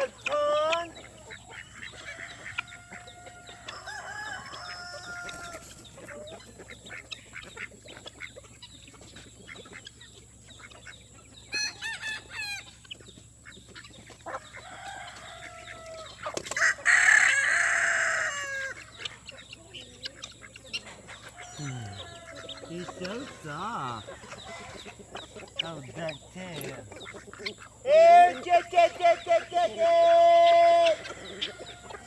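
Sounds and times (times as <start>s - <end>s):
chickens clucking: 0.0s - 32.0s.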